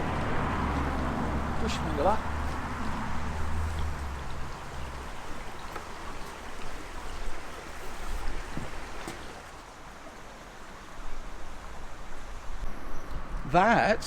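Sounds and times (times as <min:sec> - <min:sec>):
running water rushing: 0:00.0 - 0:14.0.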